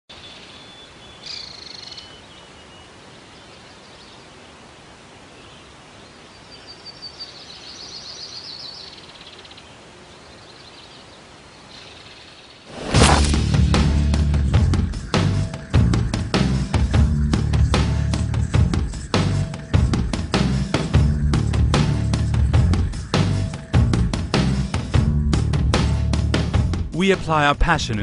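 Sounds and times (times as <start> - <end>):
songbirds chirping and trilling: 0.1 - 4.6, 5.2 - 12.8
outdoor hiss: 0.1 - 25.0.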